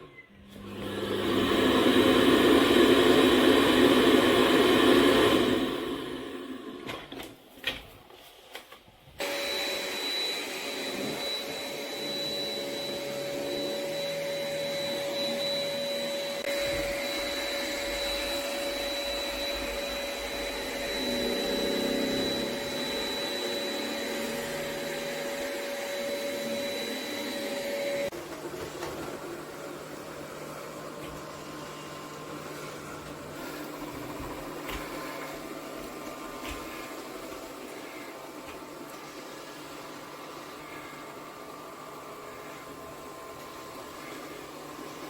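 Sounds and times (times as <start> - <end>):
robot vacuum whirring: 9.2 - 45.0.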